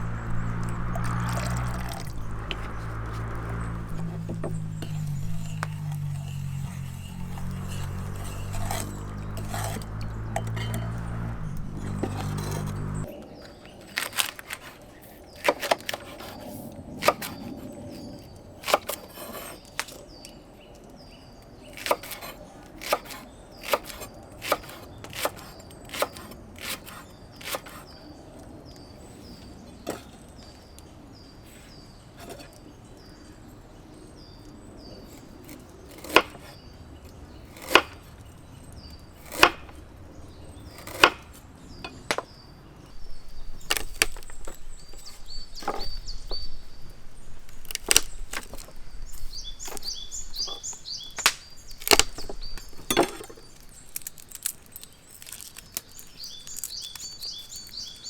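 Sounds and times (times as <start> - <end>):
blade chopping into wood: 0.0 - 13.1, 17.0 - 17.5, 21.8 - 27.8, 35.5 - 36.5, 37.6 - 38.1, 39.2 - 39.8, 40.7 - 42.3, 49.6 - 53.5.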